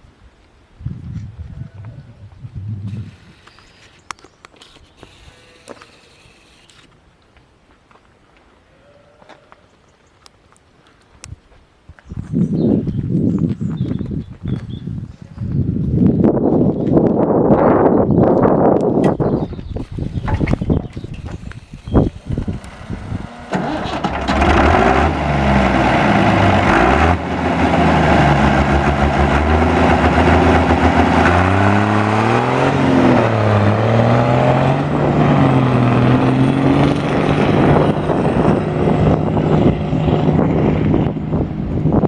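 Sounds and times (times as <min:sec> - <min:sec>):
tractor engine revving: 0:02.9 - 0:04.0, 0:04.6 - 0:06.9, 0:20.1 - 0:42.0.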